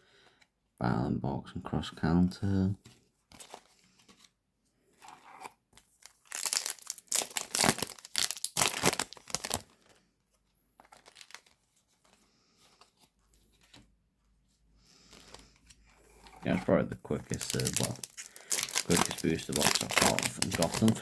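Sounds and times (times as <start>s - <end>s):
faint wrapper rustling: 5.0s - 21.0s
wrapper tearing and crinkling: 6.0s - 9.9s, 10.8s - 11.6s, 17.1s - 21.0s.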